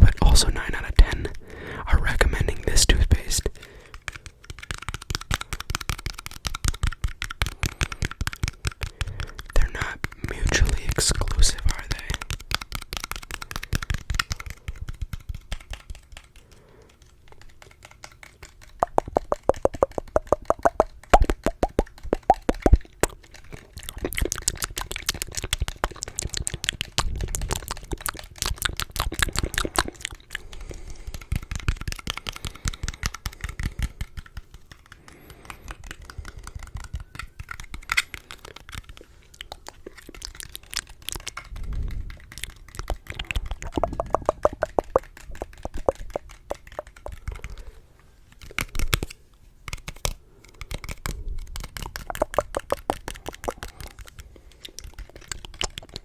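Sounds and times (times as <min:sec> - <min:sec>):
fingernail tapping clicks: 0:12.1 - 0:23.6, 0:42.1 - 0:47.6, 0:49.8 - 0:56.0.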